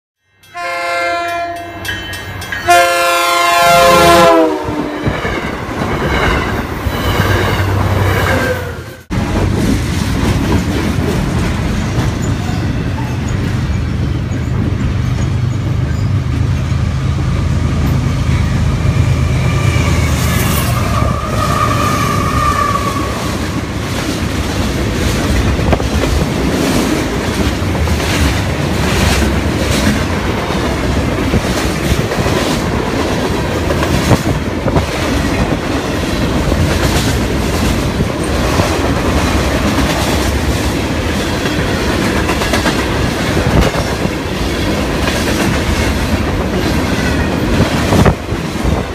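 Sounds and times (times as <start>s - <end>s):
locomotive air horn chord: 0.5s - 1.8s, 2.6s - 5.0s
wheels clacking on rails: 5.0s - 48.9s.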